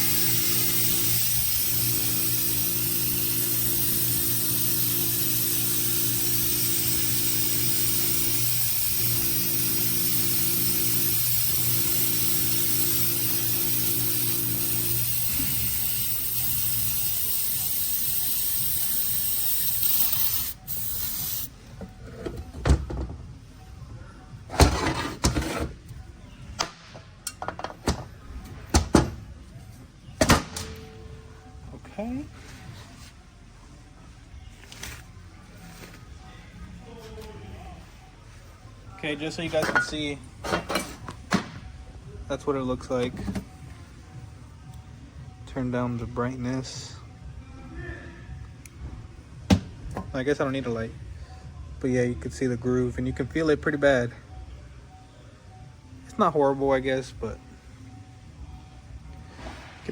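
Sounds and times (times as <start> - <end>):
compressed air spraying hiss: 0.0 - 21.5.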